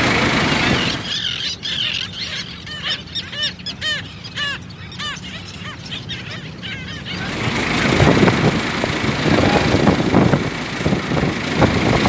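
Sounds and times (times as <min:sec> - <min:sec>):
loud rushing noise: 0:00.0 - 0:01.1
birds honking calls: 0:00.0 - 0:01.2, 0:07.1 - 0:12.0.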